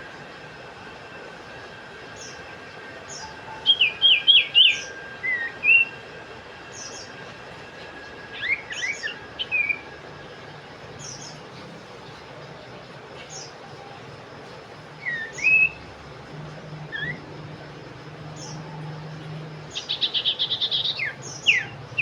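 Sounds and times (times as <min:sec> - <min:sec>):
bird whistled notes: 0:03.1 - 0:06.1, 0:08.3 - 0:09.9, 0:15.0 - 0:15.9, 0:16.8 - 0:17.4, 0:19.7 - 0:22.0.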